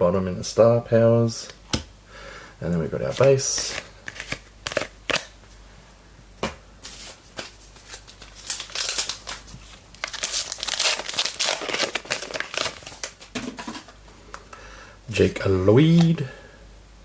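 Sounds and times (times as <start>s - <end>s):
wrapper crinkling and tearing: 7.4s - 13.3s.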